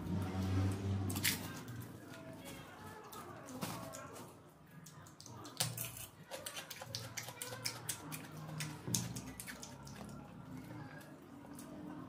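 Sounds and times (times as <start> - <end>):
wet chewing and lip-smacking: 4.8 - 11.8.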